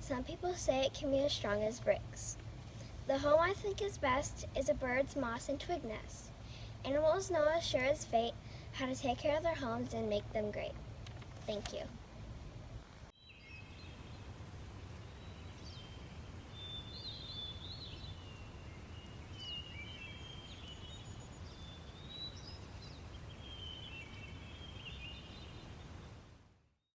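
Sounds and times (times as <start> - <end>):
songbirds chirping and trilling: 13.2 - 26.2.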